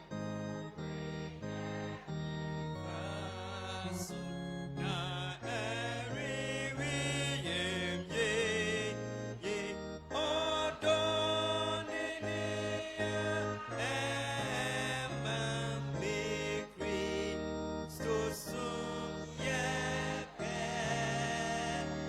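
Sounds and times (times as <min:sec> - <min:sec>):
keyboard backing: 0:00.0 - 0:22.0
sung melody with vibrato: 0:00.0 - 0:22.0.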